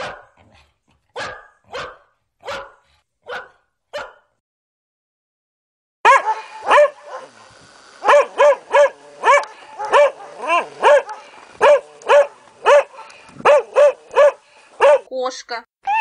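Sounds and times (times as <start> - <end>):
dog barking: 0.0 - 4.4, 6.0 - 7.4, 8.0 - 15.1.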